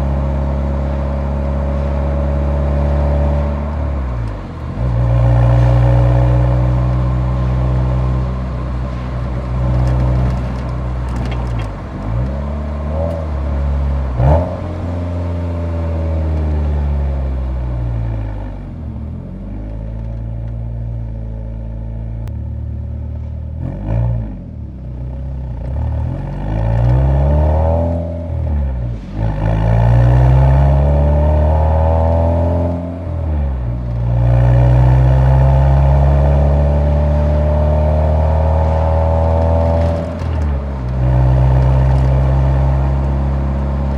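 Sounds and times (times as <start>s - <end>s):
car exhaust revving: 0.0s - 16.3s, 29.1s - 43.9s.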